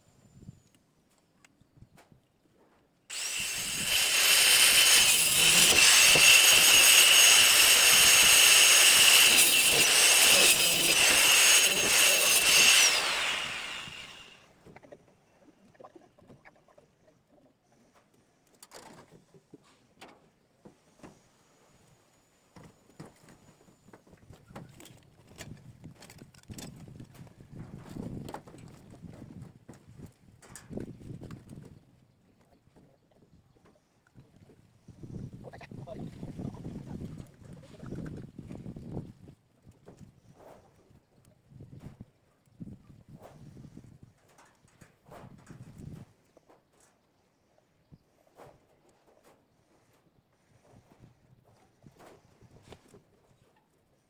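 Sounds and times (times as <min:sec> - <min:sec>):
power tool motor whine: 0:03.1 - 0:14.4.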